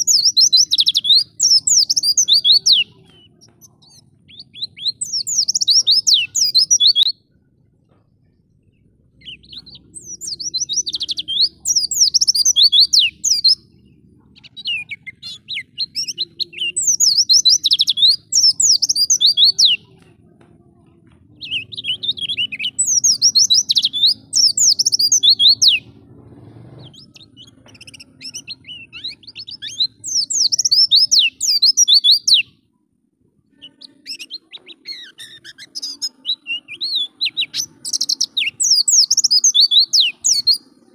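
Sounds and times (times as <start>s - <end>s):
bird twittering: 0.0s - 7.4s, 8.6s - 20.0s, 21.4s - 26.0s, 26.8s - 32.5s, 33.5s - 40.9s.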